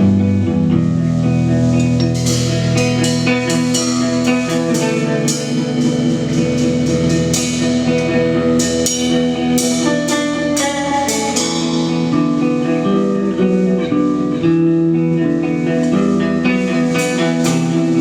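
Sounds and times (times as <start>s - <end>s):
bass line: 0.0s - 18.0s
electric guitar sustained notes: 0.0s - 18.0s
cymbal and drum hits: 1.8s - 12.4s.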